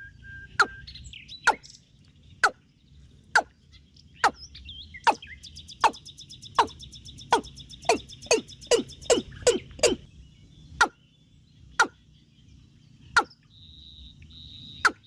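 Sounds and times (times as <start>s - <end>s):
warbling bird chirps: 0.0s - 15.0s
high ticking bird trill: 0.5s - 1.8s, 4.1s - 10.1s.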